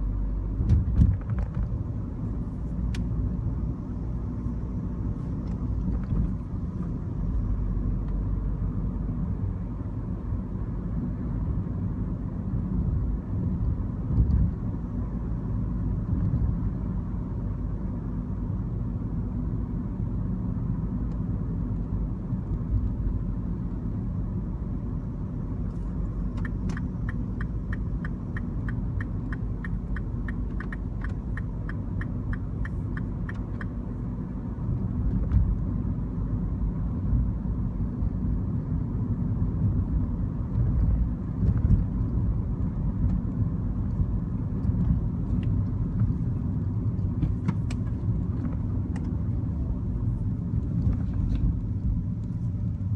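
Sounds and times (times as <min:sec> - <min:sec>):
car engine and road rumble: 0:00.0 - 0:52.9
regular ticking: 0:26.4 - 0:33.8.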